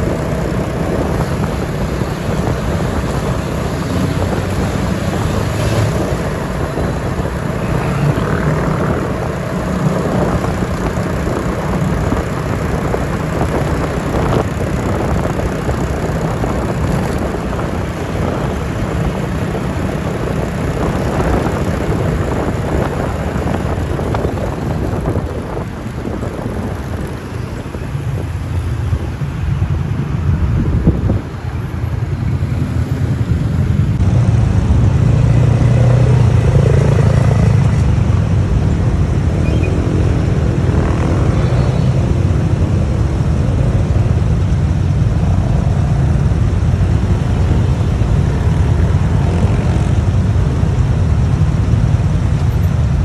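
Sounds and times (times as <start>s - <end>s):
motorbike engine: 0.0s - 53.0s
wind buffeting microphone: 0.0s - 53.0s.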